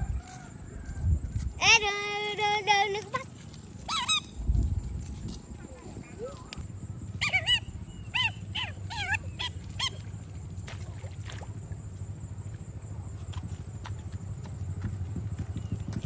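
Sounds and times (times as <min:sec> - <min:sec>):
low steady rumble: 0:00.0 - 0:16.0
short high-pitched animal calls: 0:07.2 - 0:10.0.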